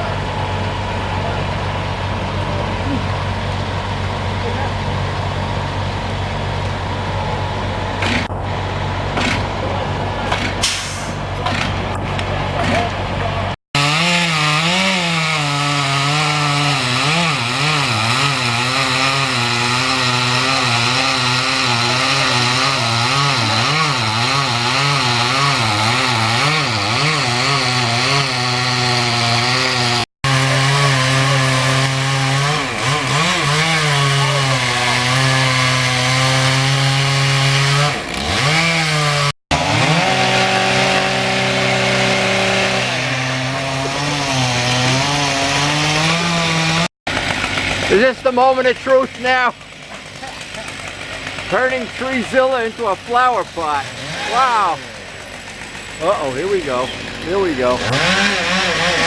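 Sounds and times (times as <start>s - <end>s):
chainsaw cutting tree trunk: 9.1s - 9.5s, 13.8s - 59.0s.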